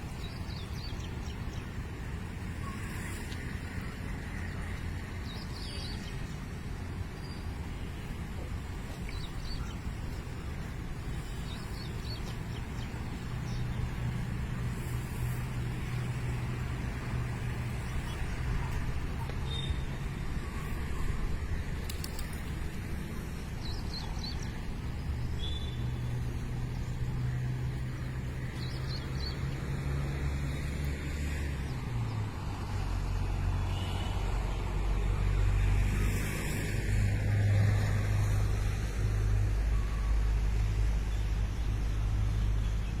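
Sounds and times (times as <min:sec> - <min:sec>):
road traffic hum: 0:00.0 - 0:43.0
bird chirps: 0:25.4 - 0:26.0.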